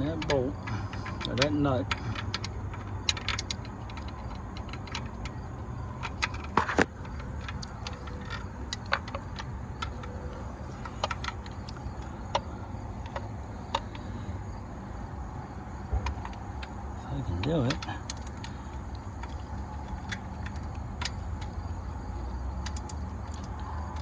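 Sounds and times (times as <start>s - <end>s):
wrench clicking on metal bolt: 0.0s - 10.2s, 22.6s - 24.0s.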